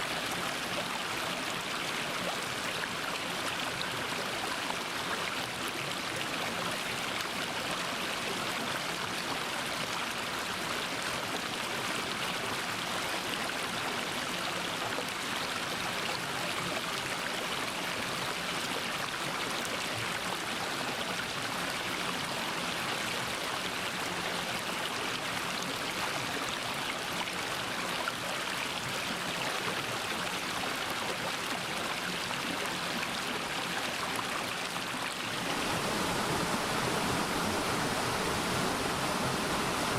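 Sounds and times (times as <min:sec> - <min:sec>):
stream water splashing over rocks: 0:00.0 - 0:39.9.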